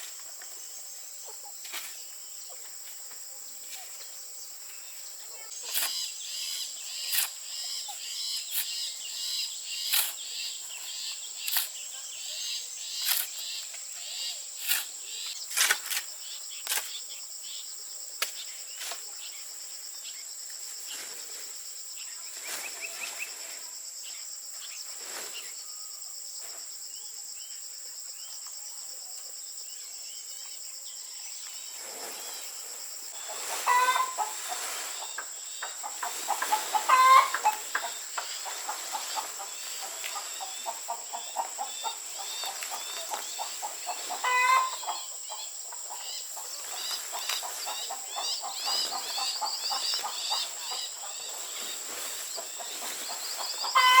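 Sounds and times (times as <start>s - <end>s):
high insect drone: 0.0s - 54.0s
chickens clucking: 33.2s - 54.0s.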